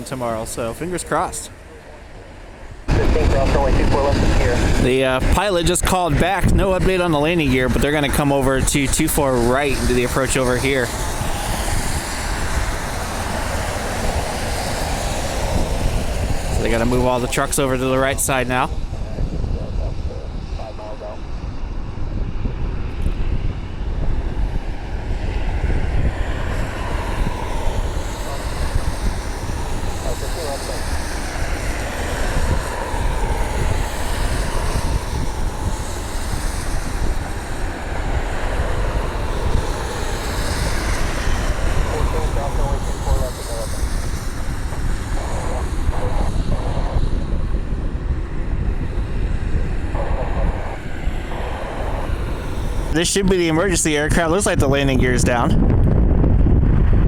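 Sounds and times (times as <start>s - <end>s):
muffled voice: 0.0s - 11.0s, 16.5s - 21.3s, 28.0s - 28.6s, 29.8s - 30.9s, 41.6s - 43.8s, 44.7s - 47.6s, 49.5s - 52.2s, 52.9s - 55.6s
distant jet engine noise: 0.0s - 57.0s
wind buffeting microphone: 0.0s - 57.0s.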